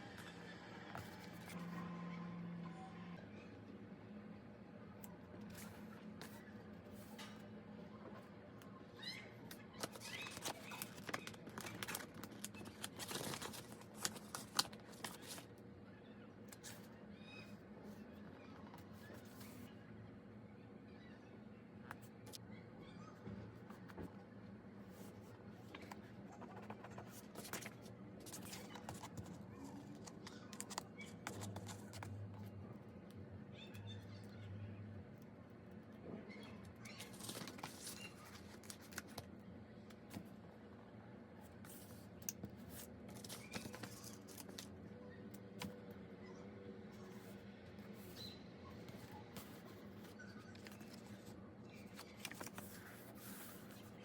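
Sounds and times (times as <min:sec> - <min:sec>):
paper crinkling and rustling: 0:09.5 - 0:15.6, 0:25.7 - 0:32.2, 0:36.8 - 0:39.3, 0:41.7 - 0:44.8, 0:49.3 - 0:54.0.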